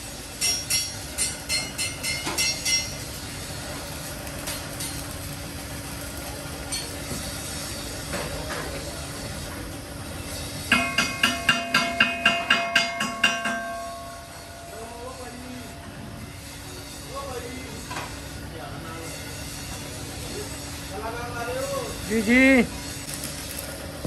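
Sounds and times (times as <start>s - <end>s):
ringing hammer blows on metal: 10.7s - 15.6s.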